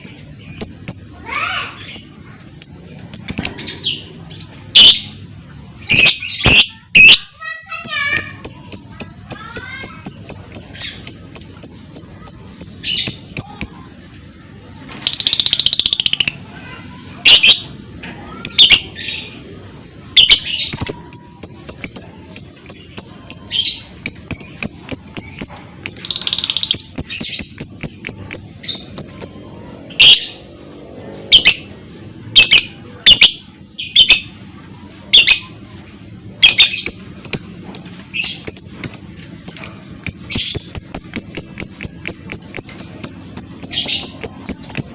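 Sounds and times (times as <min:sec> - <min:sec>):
lovebird chattering: 0:05.8 - 0:07.2, 0:15.0 - 0:16.4, 0:20.2 - 0:29.4, 0:32.4 - 0:34.4, 0:36.4 - 0:44.9.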